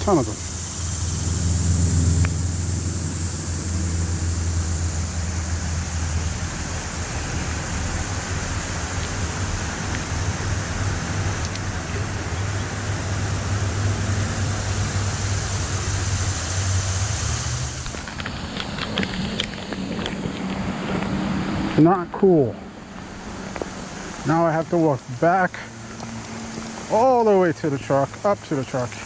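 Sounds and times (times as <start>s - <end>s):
low fluttering rumble: 0.0s - 21.8s
creek water rushing: 0.0s - 29.0s.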